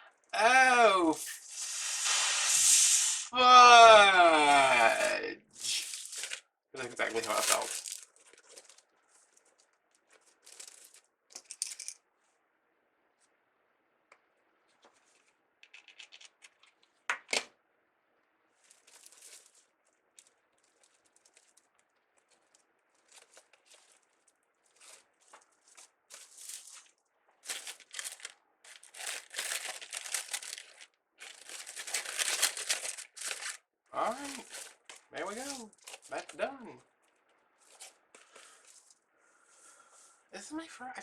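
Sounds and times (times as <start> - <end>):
mesh and ribbon rustling: 5.5 - 11.9, 18.5 - 39.0.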